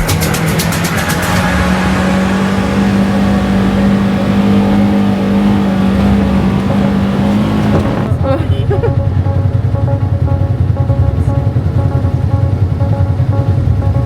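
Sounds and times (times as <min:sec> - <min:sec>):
engine running at high revs: 0:00.0 - 0:08.3
tyre and wind noise: 0:01.6 - 0:08.4.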